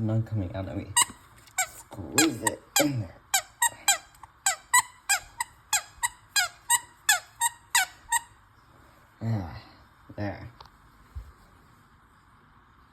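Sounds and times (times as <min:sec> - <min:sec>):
rubber squeaky toy squeaks: 0:01.0 - 0:08.4.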